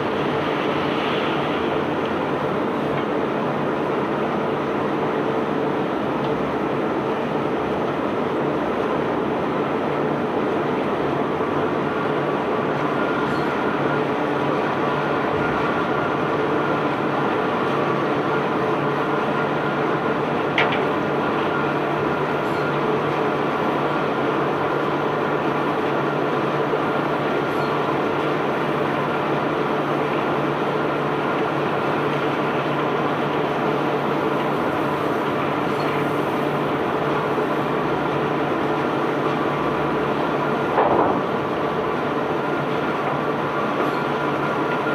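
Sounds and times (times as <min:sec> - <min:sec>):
unloading machinery hum: 0:32.0 - 0:44.9.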